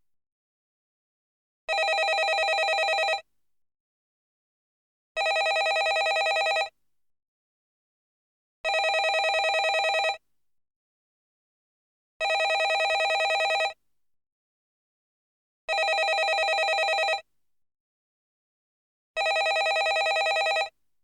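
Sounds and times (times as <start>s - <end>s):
telephone warbling ring: 19.2s - 20.7s.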